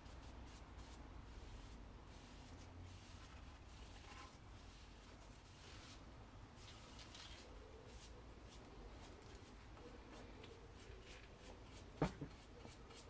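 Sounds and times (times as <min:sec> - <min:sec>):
paintbrush bristles brushing: 0:00.0 - 0:13.0.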